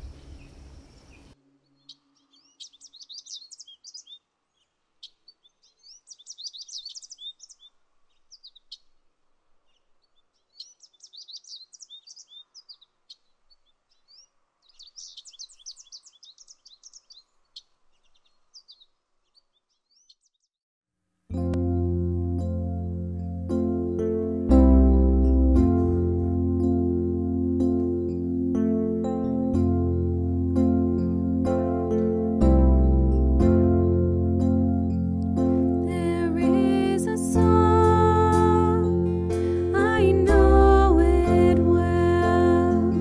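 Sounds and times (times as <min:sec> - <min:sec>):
songbird chirping: 0:00.0 - 0:20.6, 0:21.3 - 0:43.0.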